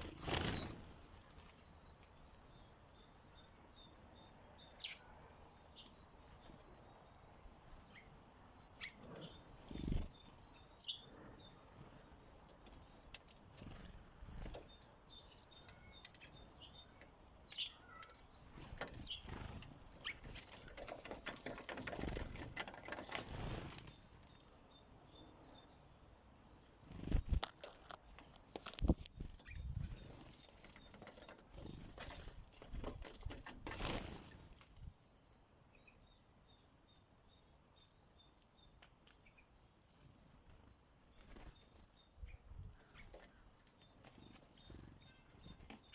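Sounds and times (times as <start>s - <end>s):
wingbeats: 0.0s - 1.5s
birds pecking and landing: 0.0s - 2.6s, 4.8s - 24.6s, 25.8s - 34.9s, 37.8s - 42.2s, 42.8s - 45.9s
faint high chirping: 0.0s - 27.4s, 28.8s - 33.1s, 35.6s - 45.9s.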